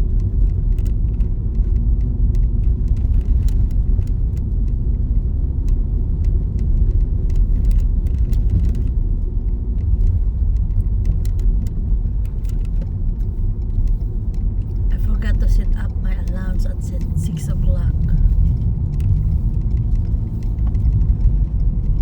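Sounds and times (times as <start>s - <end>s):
car driving on snowy road: 0.0s - 22.0s
faint light ticks: 0.1s - 5.0s, 5.6s - 15.0s.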